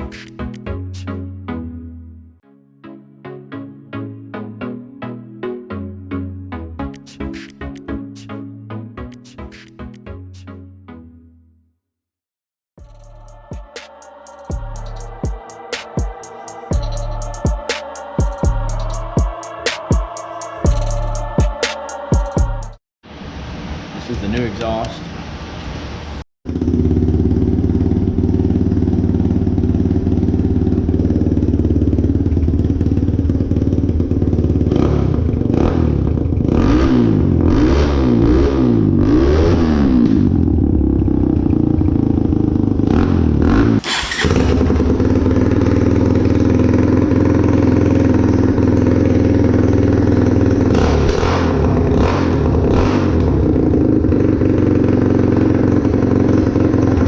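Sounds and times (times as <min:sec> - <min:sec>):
motorbike engine running: 0:26.5 - 0:57.0.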